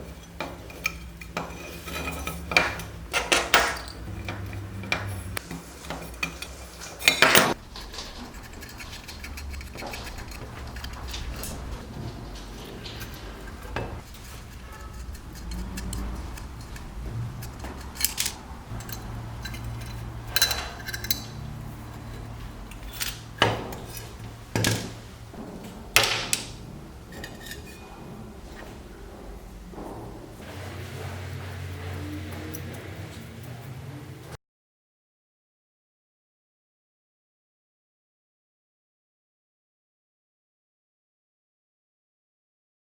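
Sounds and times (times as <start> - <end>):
low steady hum: 0.0 - 34.3
small metal parts clinking: 0.4 - 28.6
sharp metal clanks: 12.6 - 30.4.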